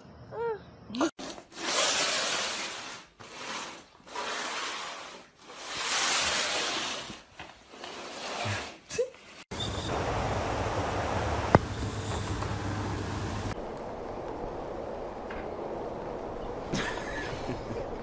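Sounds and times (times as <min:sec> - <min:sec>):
slow rubbing strokes: 0:01.5 - 0:10.0.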